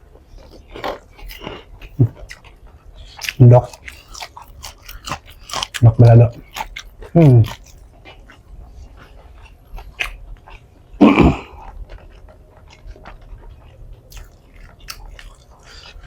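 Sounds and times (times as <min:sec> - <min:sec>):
person chewing food: 0:00.0 - 0:16.0
wet mouth clicks: 0:09.8 - 0:10.2.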